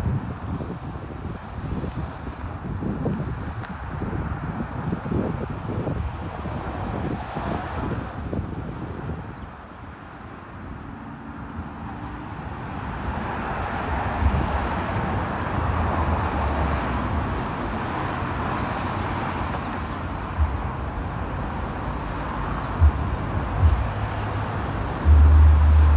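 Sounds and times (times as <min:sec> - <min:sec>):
distant road traffic rushing: 0:00.4 - 0:25.9
wind thumps on microphone: 0:14.2 - 0:15.3, 0:18.6 - 0:25.9.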